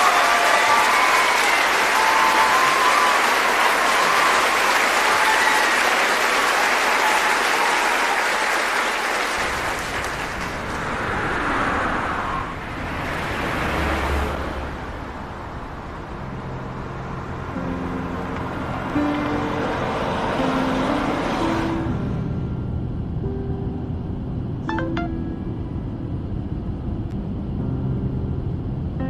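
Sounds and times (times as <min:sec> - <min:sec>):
audience applauding: 0:00.0 - 0:11.4
low rumble: 0:21.9 - 0:29.0.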